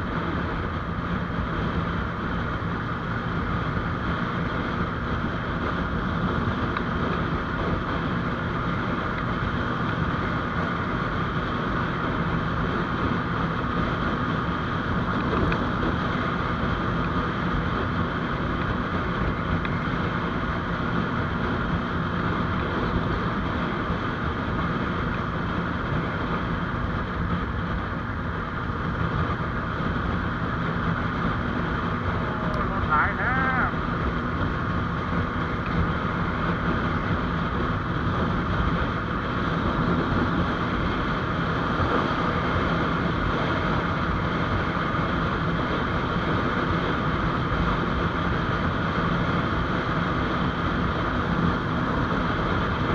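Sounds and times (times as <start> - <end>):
motorcycle engine cruising: 0.0 - 52.9
wind rushing over microphone: 0.0 - 52.9.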